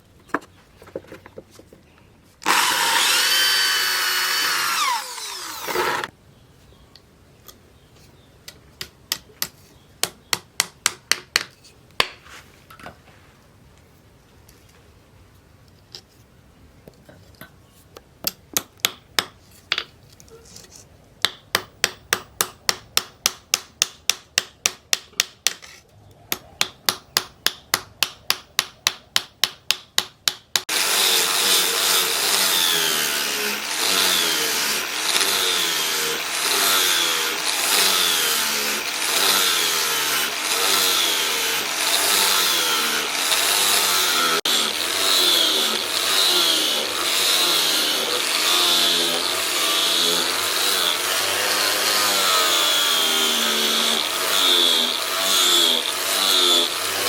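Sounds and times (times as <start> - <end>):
hand tool strokes: 2.4 - 6.1, 30.7 - 57.0
power tool running: 2.4 - 6.1, 30.7 - 57.0.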